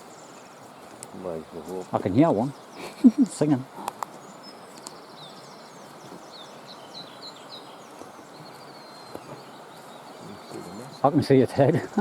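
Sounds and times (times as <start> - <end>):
song thrush singing: 0.0 - 12.0
steady outdoor hiss: 0.0 - 12.0.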